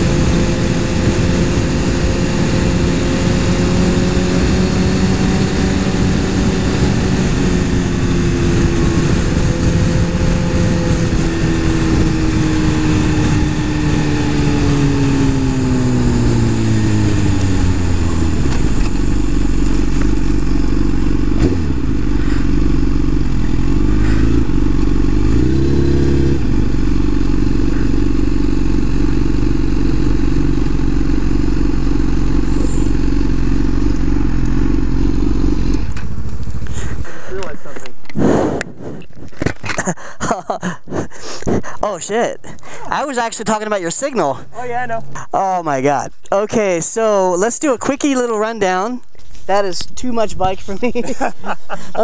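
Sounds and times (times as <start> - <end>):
motorcycle engine winding down: 0.0 - 37.0
motorcycle engine idling: 12.4 - 37.6
wind rush: 35.3 - 39.7.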